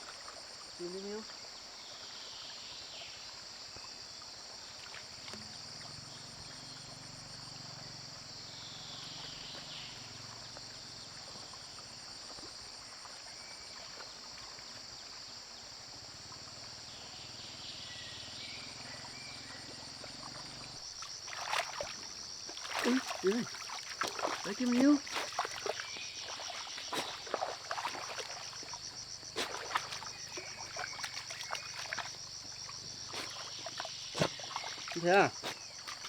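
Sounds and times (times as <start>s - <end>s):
crickets and insects trilling: 0.0s - 36.0s
knocks or splashes: 21.0s - 36.0s.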